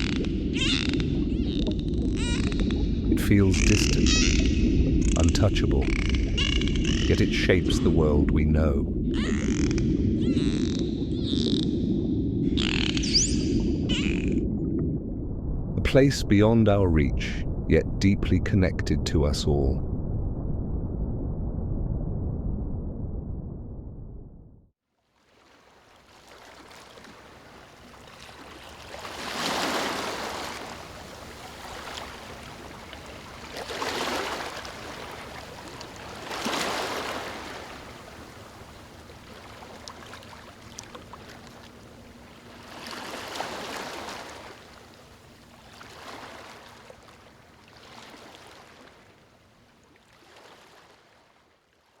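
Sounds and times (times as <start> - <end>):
ocean waves surging: 0.0 - 14.3, 26.4 - 49.0.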